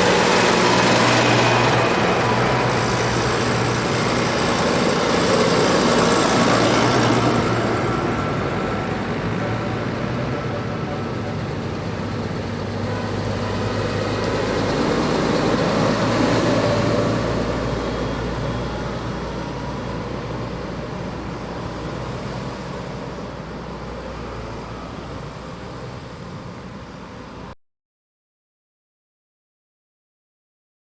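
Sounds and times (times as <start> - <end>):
tractors driving past: 0.0 - 27.6.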